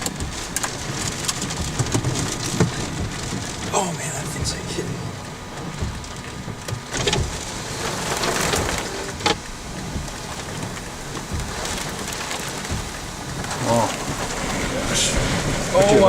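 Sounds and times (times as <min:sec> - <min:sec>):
heavy rain hitting a car: 0:00.0 - 0:16.0
sharp knocks: 0:08.4 - 0:14.4.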